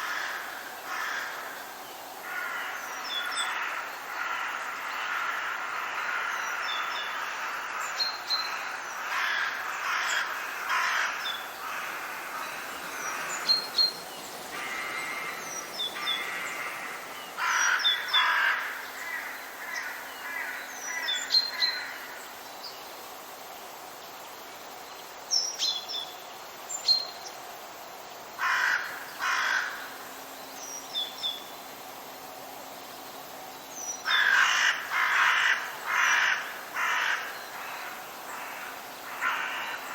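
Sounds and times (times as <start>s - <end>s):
harsh bird calls: 9.0s - 22.0s
high chirps of small birds: 10.8s - 21.9s.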